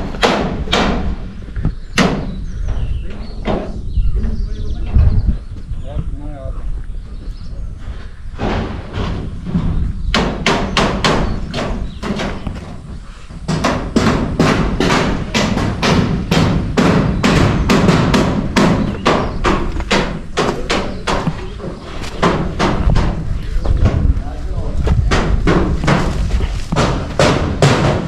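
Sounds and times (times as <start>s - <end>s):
hammer blows: 8.4s - 28.0s.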